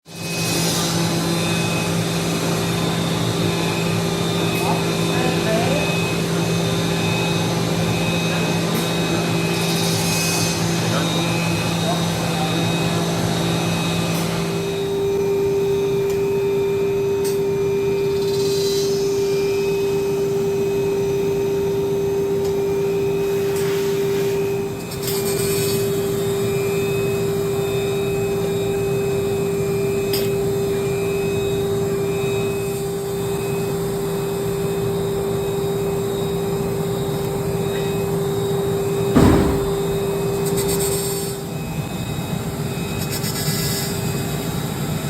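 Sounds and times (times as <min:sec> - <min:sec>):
machine motor hum over hiss: 0:00.1 - 0:45.0.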